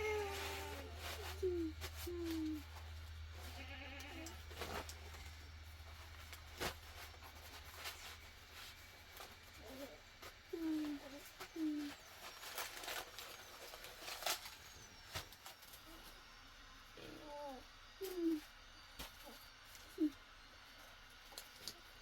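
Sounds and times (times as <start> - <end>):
steady low hum: 0.0 - 22.0
small livestock bleating: 3.4 - 4.5.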